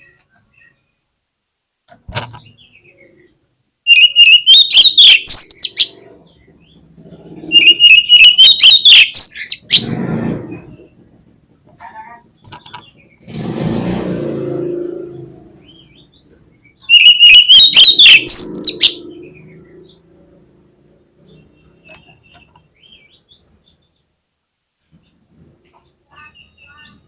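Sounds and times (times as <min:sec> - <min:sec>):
bird song with whistled notes: 0:02.4 - 0:06.8, 0:07.4 - 0:09.9, 0:14.9 - 0:20.4
low muffled noise: 0:09.6 - 0:16.9
faint bird chirps: 0:14.6 - 0:20.4.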